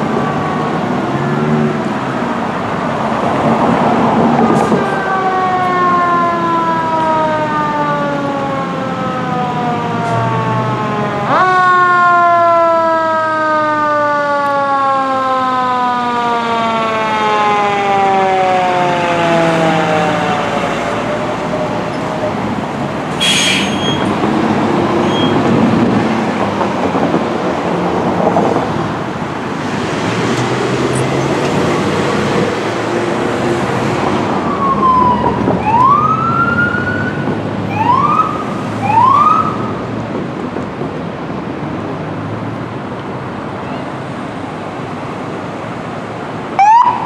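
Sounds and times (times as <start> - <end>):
traffic noise: 0.0 - 47.0
siren winding down: 34.3 - 39.8.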